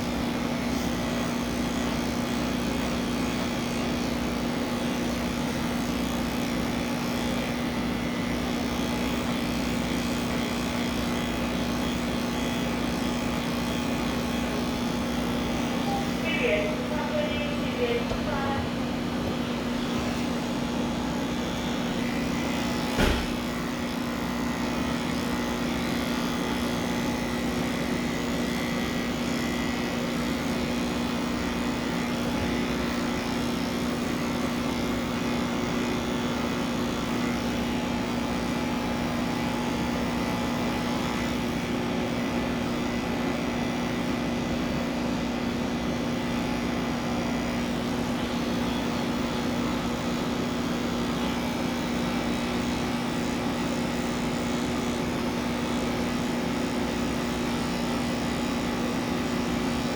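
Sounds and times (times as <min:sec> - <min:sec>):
electric pet clippers humming: 0:00.0 - 0:59.9.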